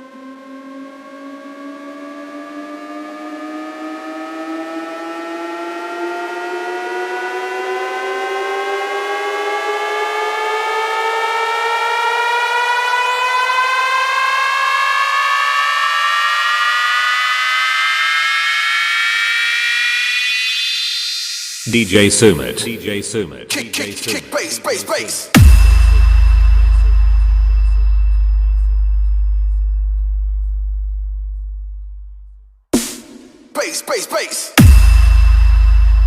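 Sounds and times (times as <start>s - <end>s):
rising siren-like riser tone: 0.0s - 21.6s, 25.2s - 31.9s.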